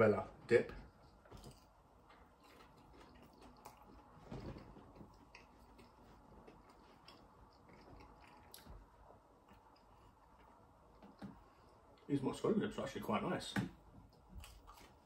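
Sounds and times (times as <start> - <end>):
faint chewing: 0.8 - 12.1, 14.0 - 15.0.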